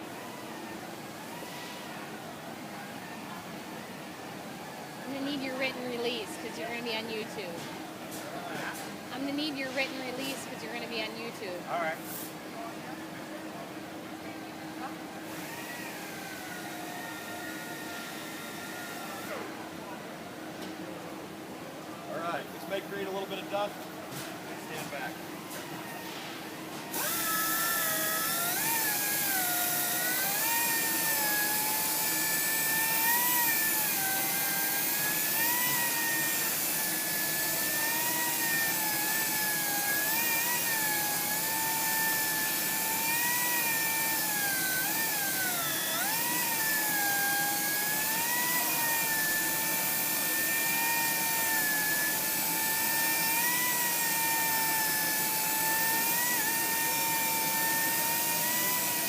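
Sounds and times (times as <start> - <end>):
electric buffer motor whine: 14.7 - 20.0, 26.8 - 59.0.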